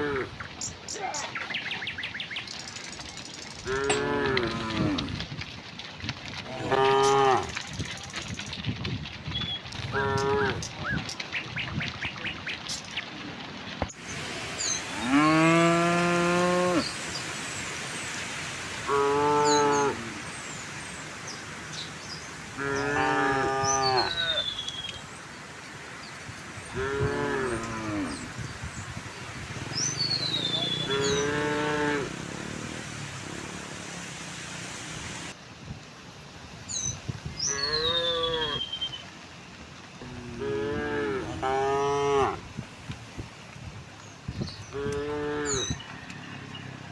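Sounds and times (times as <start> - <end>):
cattle mooing: 3.7 - 5.1, 6.5 - 7.5, 14.2 - 17.2, 18.8 - 20.4, 22.4 - 25.0, 26.7 - 28.5, 29.6 - 35.3, 44.7 - 45.8
bird whistled calls: 23.6 - 25.2, 29.7 - 31.4, 36.7 - 39.0.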